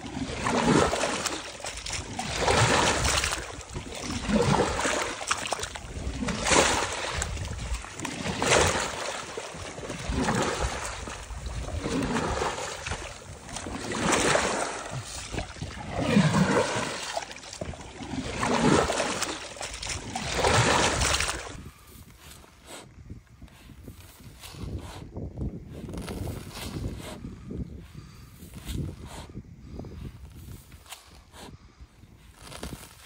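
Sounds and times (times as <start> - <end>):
water splashing in strokes: 0.0 - 21.7.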